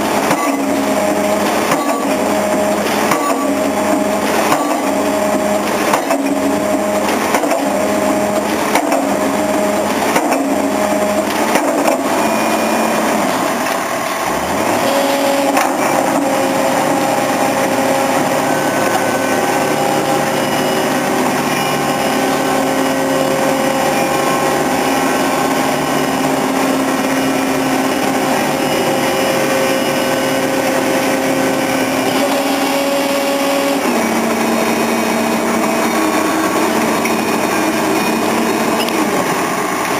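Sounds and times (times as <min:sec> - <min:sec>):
rig engine running: 0:00.0 - 0:39.9
pile driver hammer strikes: 0:00.2 - 0:12.4.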